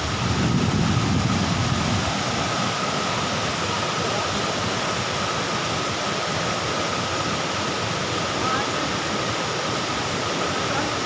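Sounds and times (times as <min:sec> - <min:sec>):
wind rumble on microphone: 0:00.0 - 0:03.3
waterfall rushing: 0:00.0 - 0:11.0.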